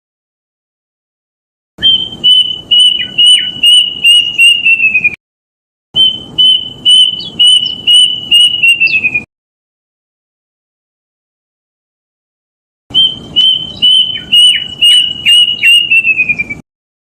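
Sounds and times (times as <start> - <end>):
cuckoo whistling song: 1.8 - 5.2, 6.0 - 9.3, 12.9 - 16.6.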